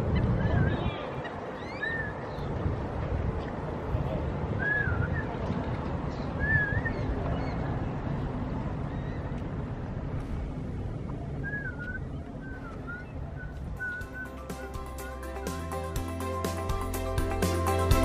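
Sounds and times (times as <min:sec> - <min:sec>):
low outdoor rumble: 0:00.0 - 0:18.0
whistled bird calls: 0:01.5 - 0:02.5, 0:04.6 - 0:05.4, 0:06.2 - 0:07.6, 0:11.4 - 0:15.2.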